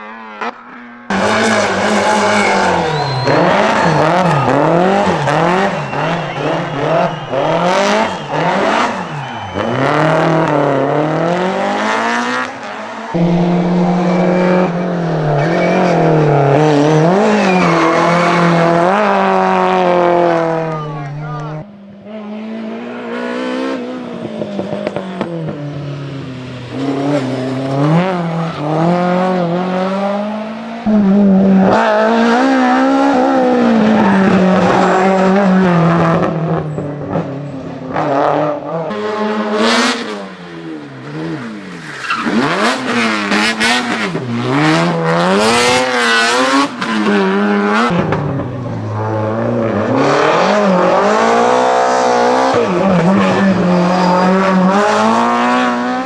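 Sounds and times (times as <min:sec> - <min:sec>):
car engine revving: 0:01.1 - 0:25.2, 0:30.9 - 0:37.3, 0:41.1 - 0:56.0.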